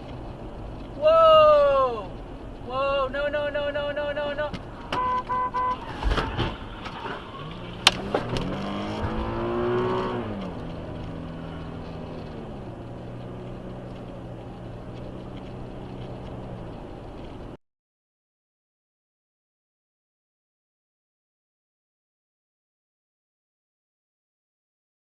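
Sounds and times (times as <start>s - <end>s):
car engine revving: 4.7s - 17.5s
thud: 5.8s - 7.3s.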